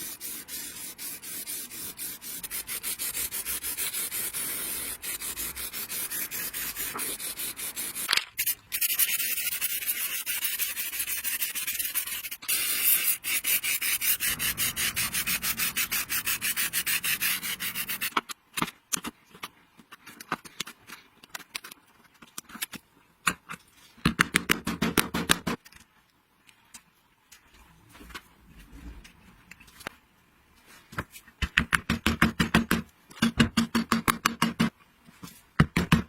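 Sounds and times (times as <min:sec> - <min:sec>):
rubbing strokes on metal: 0:00.0 - 0:08.1, 0:08.7 - 0:18.1.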